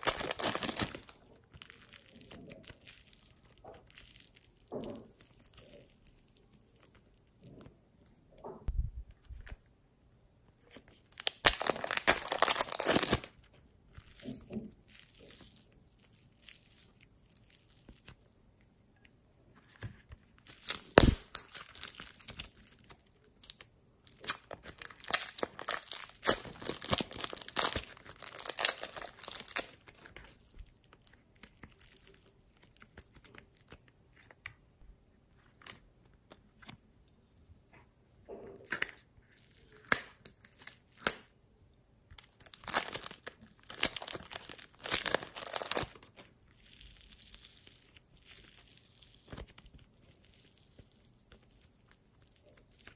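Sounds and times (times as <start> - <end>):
slime squishing by hand: 0.0 - 9.7, 10.6 - 36.9, 42.0 - 52.9.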